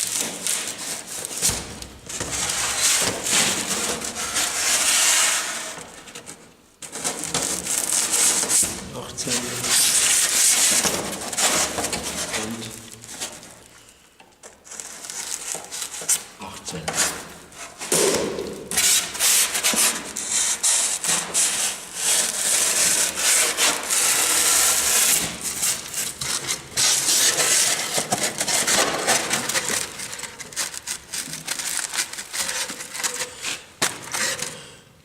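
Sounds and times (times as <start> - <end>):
styrofoam rubbing and scraping: 0.0 - 13.7, 14.6 - 18.0, 18.7 - 34.5
styrofoam squeaks: 6.9 - 8.7, 14.7 - 16.3, 18.8 - 34.5.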